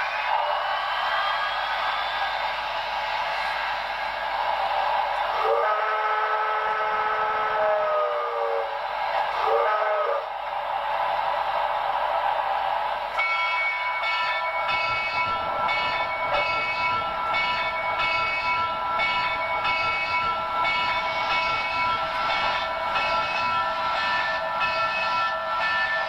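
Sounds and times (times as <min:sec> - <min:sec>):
steam engine chuffing: 0:13.2 - 0:26.0.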